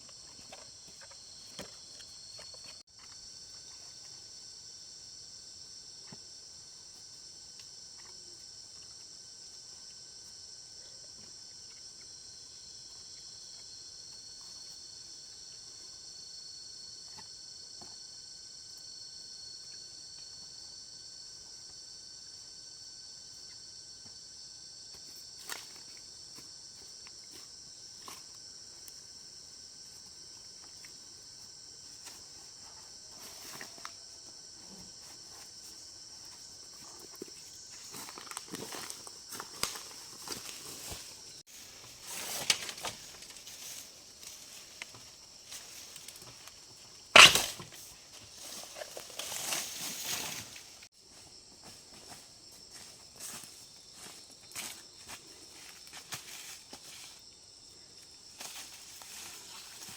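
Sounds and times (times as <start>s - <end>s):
footsteps through undergrowth: 37.2s - 57.3s
loud sharp crack: 47.2s - 47.6s.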